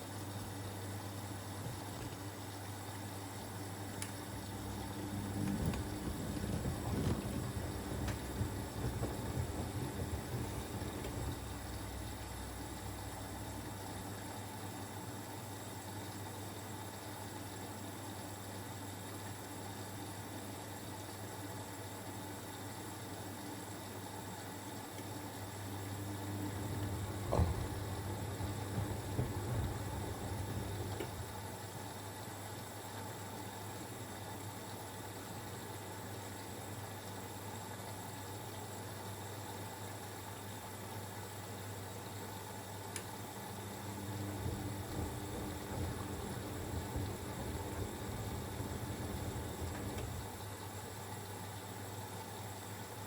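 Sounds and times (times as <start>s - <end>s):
washing machine drum tumbling: 4.2s - 14.3s, 25.9s - 31.6s, 43.8s - 50.5s.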